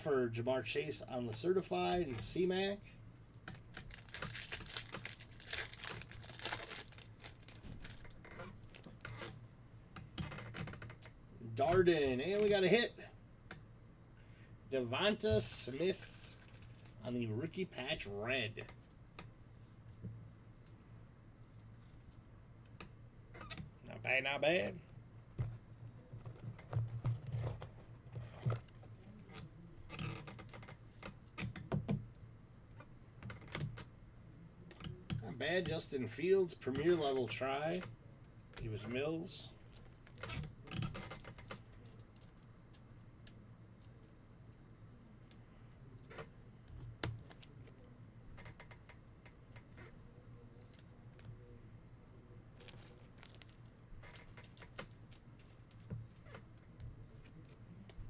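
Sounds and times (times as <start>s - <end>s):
card rustle: 3.5s - 9.0s
foil wrapper crinkling: 3.5s - 9.1s
cards clicking and scraping: 3.5s - 9.4s.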